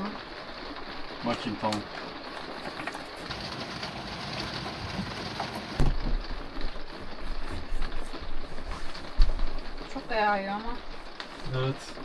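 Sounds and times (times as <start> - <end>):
heavy rain falling: 0.0 - 12.0
loud low thump: 5.8 - 6.3.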